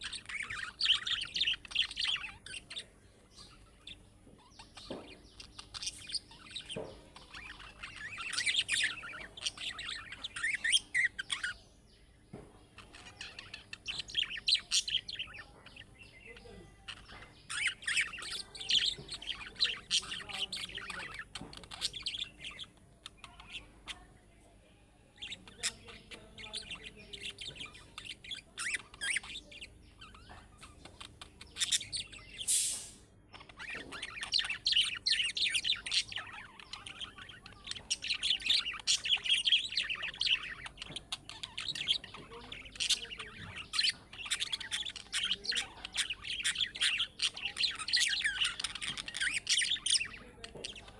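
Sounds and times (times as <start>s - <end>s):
budgerigars chirping and warbling: 0.0s - 50.9s
short hiss: 32.4s - 33.1s.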